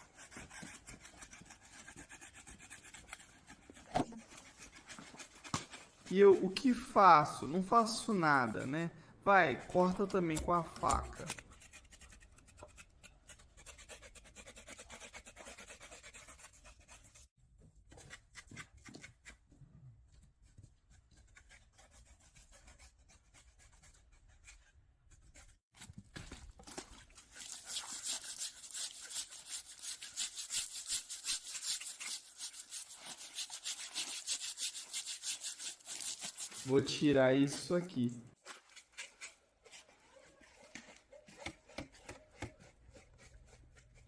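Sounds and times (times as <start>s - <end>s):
knife scraping pig skin: 0.0s - 6.9s, 10.2s - 17.3s, 26.9s - 37.0s, 38.4s - 44.0s.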